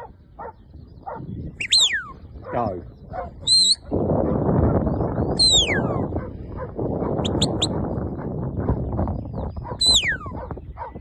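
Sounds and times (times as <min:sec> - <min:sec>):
shepherd's whistle: 0:01.6 - 0:02.2, 0:03.5 - 0:03.8, 0:05.4 - 0:06.0, 0:07.2 - 0:07.7, 0:09.8 - 0:10.4.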